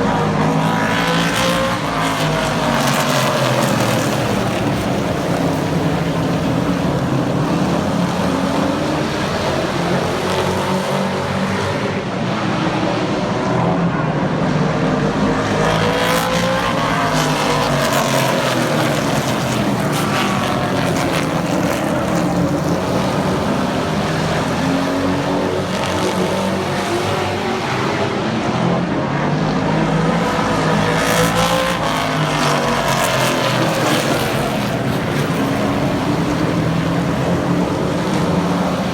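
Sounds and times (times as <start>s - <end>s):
race truck engines passing: 0.0s - 38.9s.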